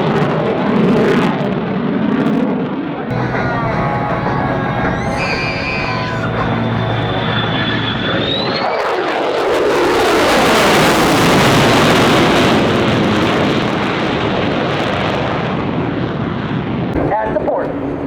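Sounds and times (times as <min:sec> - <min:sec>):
fighter jet roaring past: 0:03.1 - 0:08.3.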